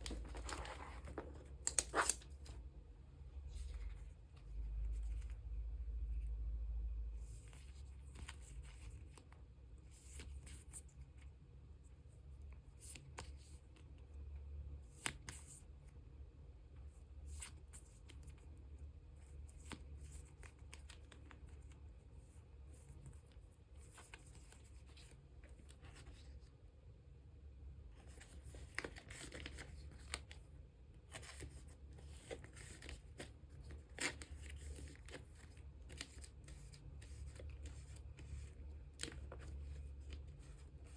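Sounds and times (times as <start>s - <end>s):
plastic sleeves crinkling and tapping: 0.0s - 2.6s, 28.1s - 30.4s, 31.1s - 40.9s
low steady hum: 0.0s - 40.9s.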